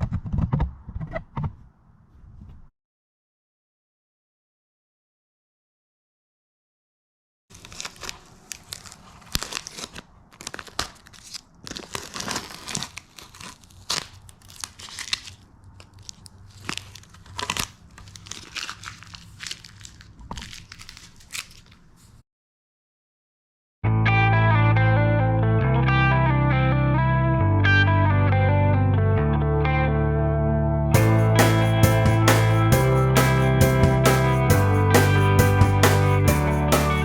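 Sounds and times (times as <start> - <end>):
tape and rubber coating peeling off: 7.5 - 22.1.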